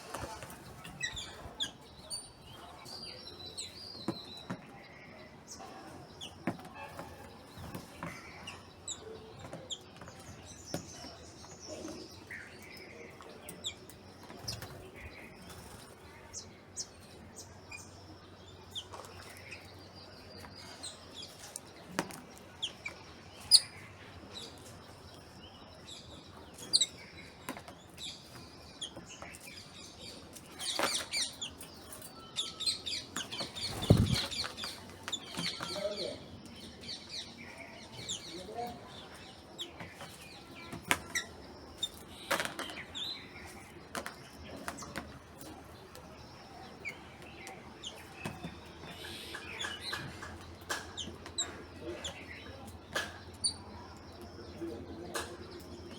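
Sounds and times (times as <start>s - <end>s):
small birds chirping: 0.0s - 55.9s
wing flutters: 33.2s - 34.9s.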